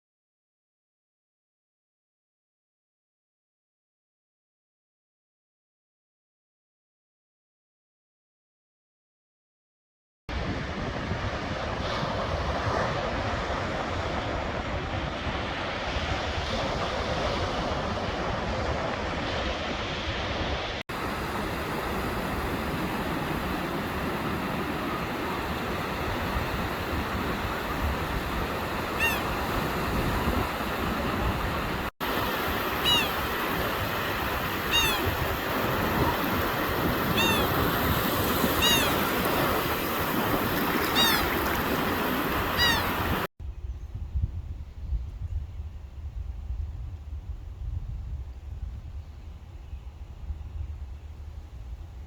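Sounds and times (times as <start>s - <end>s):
bird calls: 28.9s - 29.5s, 32.7s - 33.3s, 34.6s - 35.2s, 37.0s - 37.7s, 38.4s - 39.3s, 40.6s - 43.8s.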